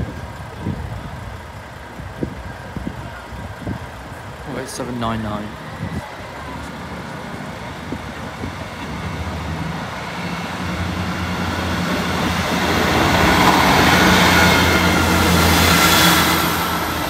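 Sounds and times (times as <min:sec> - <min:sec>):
diesel train engines running: 0:00.0 - 0:17.0
rumble of wheels on rail: 0:00.0 - 0:17.0.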